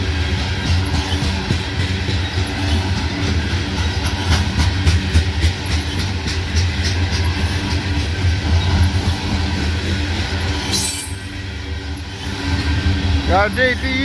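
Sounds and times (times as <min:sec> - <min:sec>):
wheels clicking over rail joints: 0:00.0 - 0:11.0, 0:12.0 - 0:14.0
train low rumble: 0:00.0 - 0:14.0
high wheel squeals: 0:10.5 - 0:11.3.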